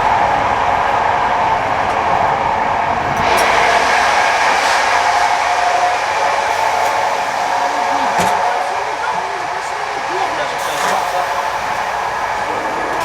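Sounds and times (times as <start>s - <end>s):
constant whine: 0.0s - 13.0s
train wheel and track noise: 0.0s - 13.0s.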